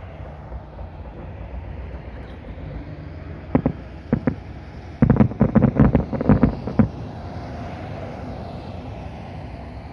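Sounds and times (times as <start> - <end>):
distant firework bangs: 3.4 - 7.1.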